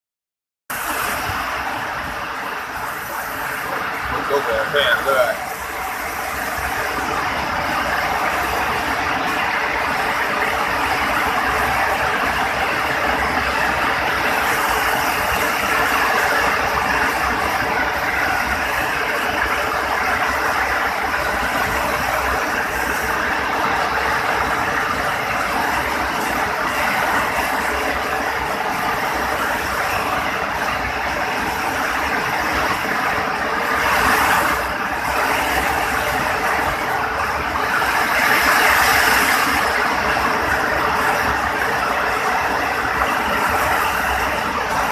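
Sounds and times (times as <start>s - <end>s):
very heavy rain pouring: 0.7s - 44.9s.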